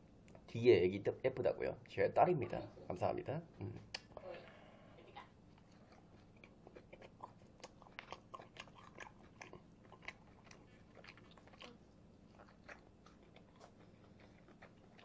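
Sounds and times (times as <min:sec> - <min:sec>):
chewing and biting food: 0:05.5 - 0:15.0.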